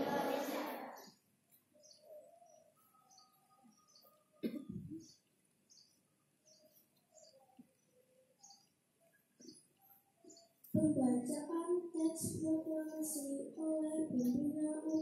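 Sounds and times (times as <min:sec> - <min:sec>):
small birds chirping: 0:00.2 - 0:15.0
brief cough-like noise: 0:04.4 - 0:04.9.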